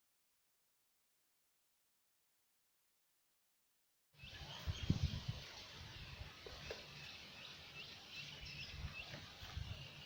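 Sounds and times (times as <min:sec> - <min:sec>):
faint outdoor ambience: 0:04.2 - 0:10.0
small birds chirping: 0:04.2 - 0:10.0.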